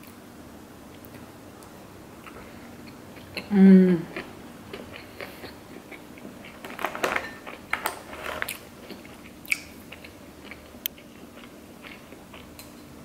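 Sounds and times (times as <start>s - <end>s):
person chewing with wet smacks: 2.2s - 6.8s, 8.4s - 12.8s.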